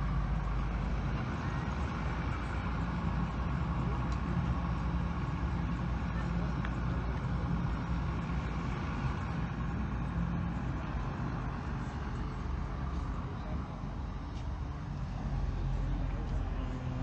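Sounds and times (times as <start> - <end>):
heavy engine droning: 0.0 - 17.0.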